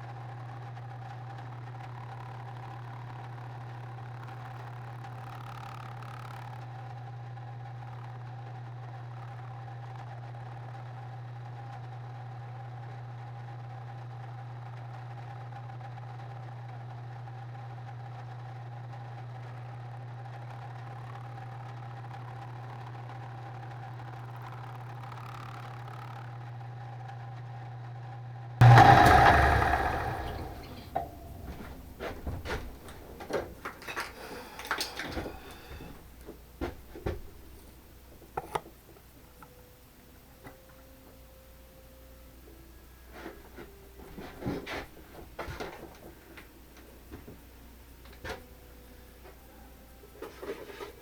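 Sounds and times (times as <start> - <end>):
low machine hum: 28.6 - 51.0.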